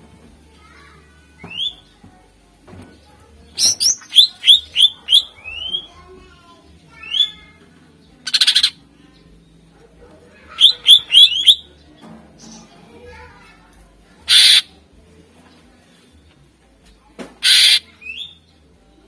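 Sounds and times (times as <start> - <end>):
bird whistling sharp notes: 1.4 - 1.8, 3.6 - 5.9, 10.6 - 11.6, 14.3 - 14.7, 17.4 - 18.4.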